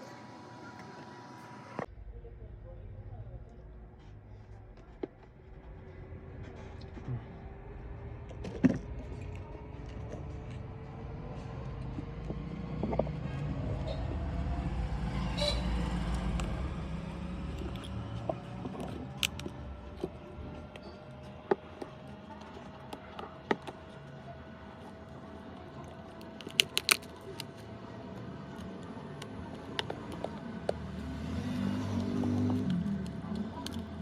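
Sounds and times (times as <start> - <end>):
low rumble: 1.8 - 21.4.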